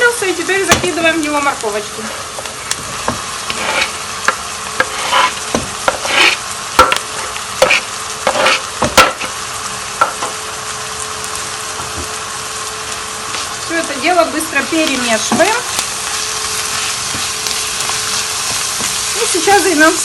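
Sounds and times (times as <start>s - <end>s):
vegetables sizzling in oil: 0.0s - 20.0s
utensil scraping a pan: 2.0s - 9.4s.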